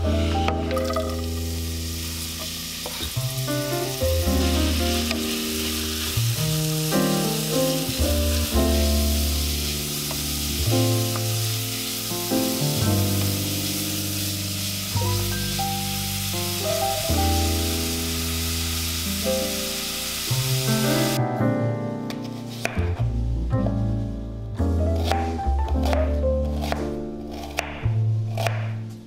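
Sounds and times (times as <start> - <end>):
carrots sizzling in hot oil: 0.0 - 21.2
background music with bass line: 2.6 - 18.3, 20.4 - 29.0.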